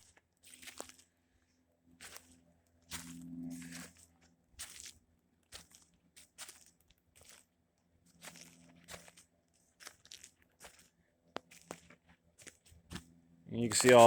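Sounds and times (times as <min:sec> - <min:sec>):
footsteps on gravel: 0:04.6 - 0:05.0, 0:08.2 - 0:10.9, 0:13.6 - 0:14.0.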